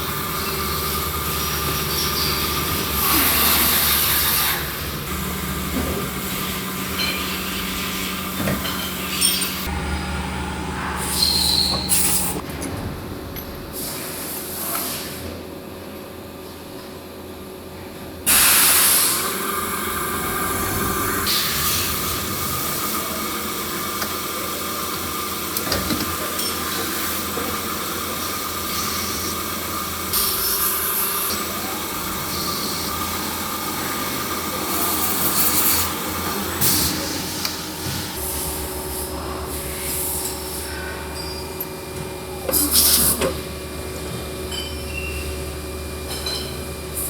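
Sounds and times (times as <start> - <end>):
machinery din: 19.7 - 23.0.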